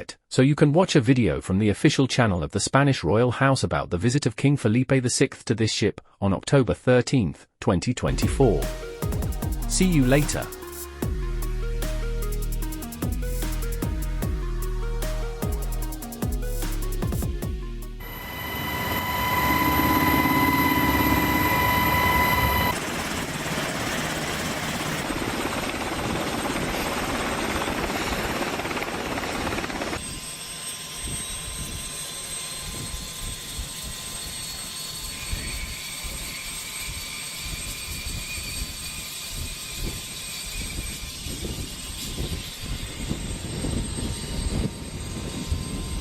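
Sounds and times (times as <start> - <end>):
helicopter turbine whine and rotor: 8.1 - 46.0.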